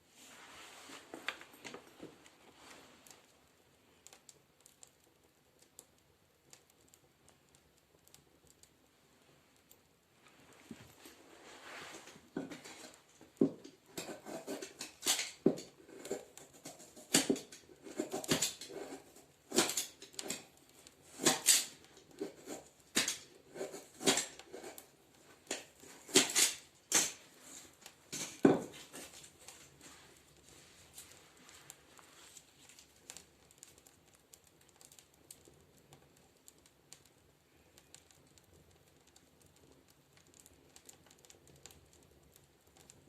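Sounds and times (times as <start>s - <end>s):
wood stove knocks and crackles: 9.6s - 43.0s.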